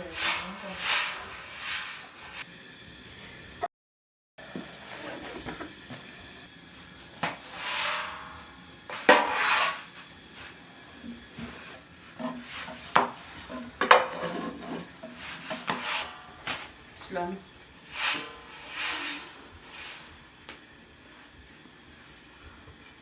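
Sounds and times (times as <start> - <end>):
dishes scraping: 0.0 - 2.4, 7.3 - 16.8, 17.8 - 20.2.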